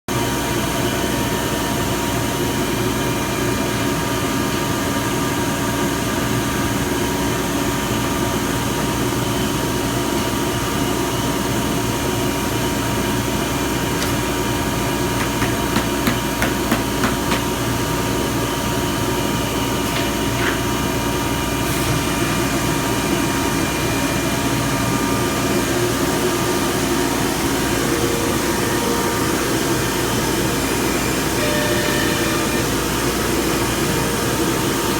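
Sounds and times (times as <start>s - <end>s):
cnc router machine drone: 0.2s - 34.9s
sharp knocks: 15.2s - 17.6s.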